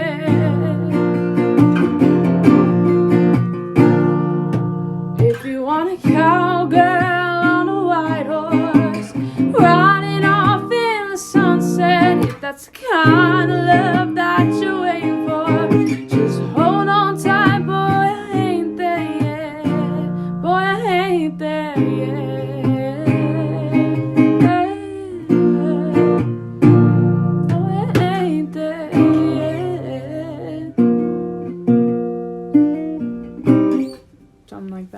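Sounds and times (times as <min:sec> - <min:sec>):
acoustic guitar chords: 0:00.0 - 0:34.9
person singing long notes: 0:05.2 - 0:20.1.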